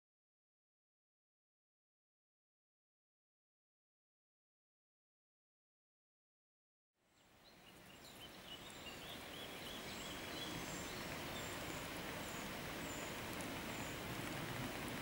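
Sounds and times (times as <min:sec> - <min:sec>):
open air hiss: 0:07.0 - 0:15.0
small birds chirping: 0:07.1 - 0:15.0.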